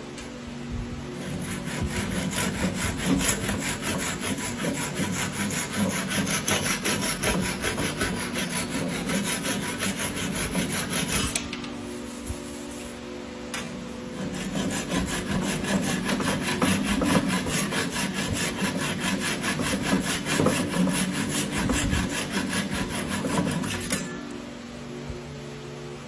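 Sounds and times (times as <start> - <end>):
hand saw cutting wood: 1.2 - 11.4, 14.1 - 24.1.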